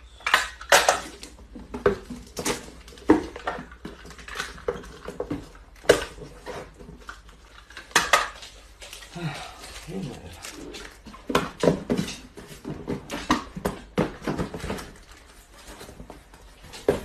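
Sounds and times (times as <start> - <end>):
cardboard rustling and knocking: 1.3 - 7.3, 10.8 - 17.0.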